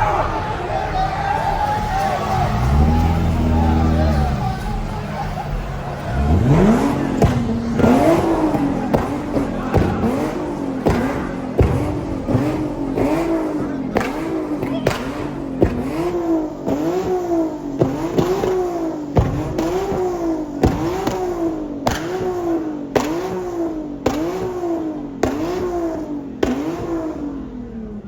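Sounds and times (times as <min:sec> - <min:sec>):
car engine revving: 0:00.0 - 0:28.0
sharp crack: 0:06.0 - 0:25.8.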